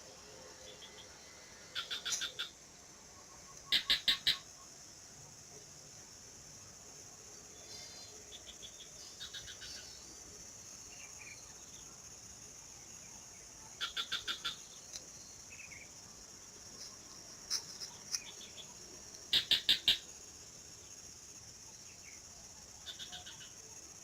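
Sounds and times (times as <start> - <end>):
high insect drone: 0.0 - 24.0
bird chirps: 3.4 - 4.7, 17.5 - 20.0
bird calling repeated notes: 3.6 - 4.4, 19.3 - 20.0.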